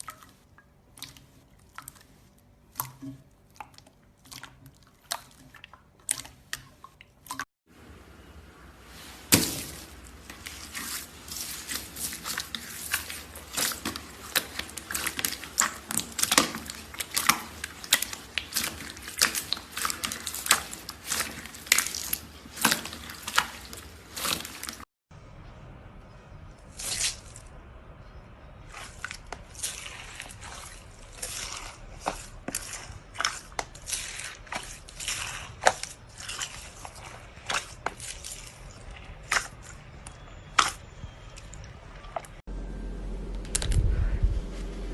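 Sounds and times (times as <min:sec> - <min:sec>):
slime squished by hand: 0:28.7 - 0:42.4.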